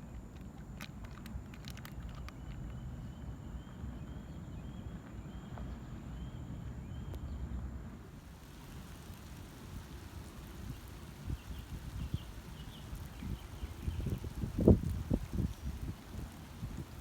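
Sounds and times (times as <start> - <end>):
heavy rain: 8.1 - 17.0
raindrop ticks: 8.3 - 17.0
gusty wind on microphone: 8.4 - 17.0.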